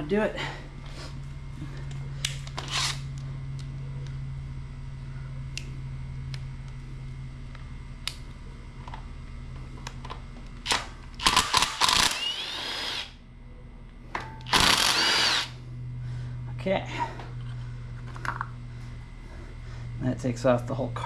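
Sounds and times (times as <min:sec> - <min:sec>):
steady low hum: 0:00.0 - 0:21.0
cordless drill whirring: 0:02.6 - 0:03.0, 0:10.7 - 0:13.2, 0:14.5 - 0:15.6.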